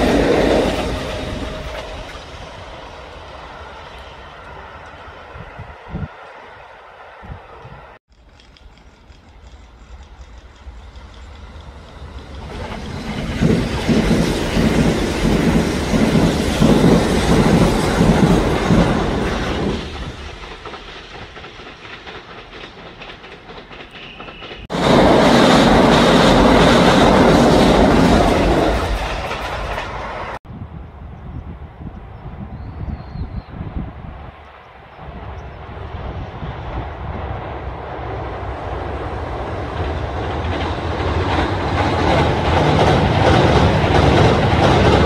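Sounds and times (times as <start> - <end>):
loud rush of train noise: 0.0 - 45.0
wheels clickety-clack over rail joints: 7.1 - 30.4, 35.3 - 45.0.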